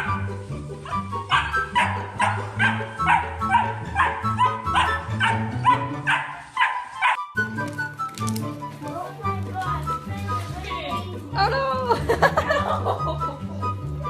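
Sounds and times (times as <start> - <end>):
background music with bass line: 0.0 - 6.4, 7.2 - 14.0
dog yipping and barking: 0.8 - 7.3.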